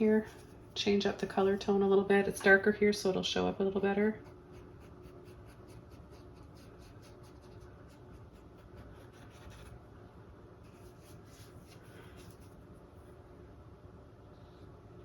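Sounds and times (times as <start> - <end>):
paintbrush strokes on canvas: 10.6 - 12.8.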